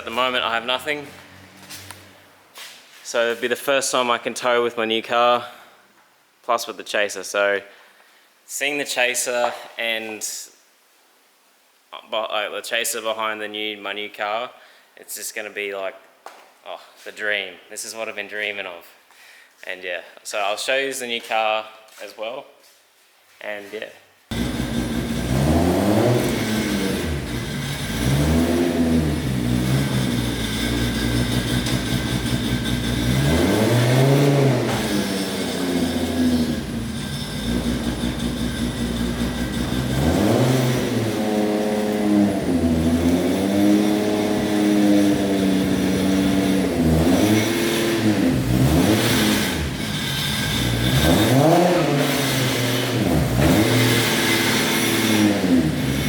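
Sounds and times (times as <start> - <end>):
car engine revving: 24.3 - 56.0.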